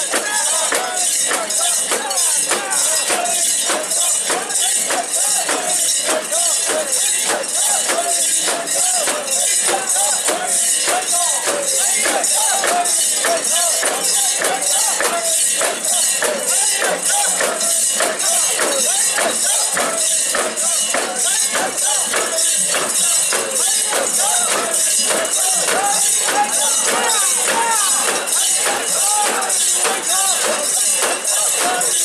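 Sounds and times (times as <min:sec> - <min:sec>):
many voices calling: 0:00.0 - 0:32.0.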